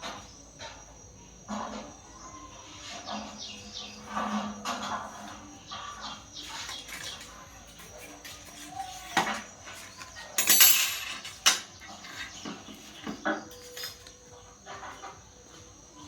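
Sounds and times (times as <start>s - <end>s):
hard objects clinking and knocking: 8.2s - 14.2s.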